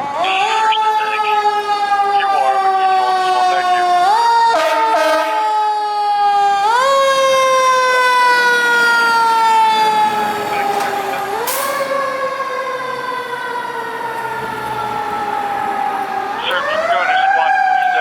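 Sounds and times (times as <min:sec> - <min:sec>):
fire engine siren: 0:00.0 - 0:18.0.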